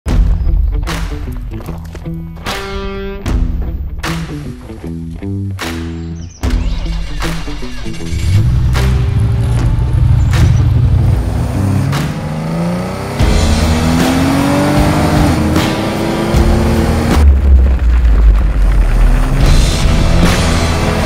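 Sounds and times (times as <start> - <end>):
music with heavy beat: 2.4 - 5.0, 5.6 - 17.3, 19.3 - 21.0
car engine accelerating: 6.8 - 21.0.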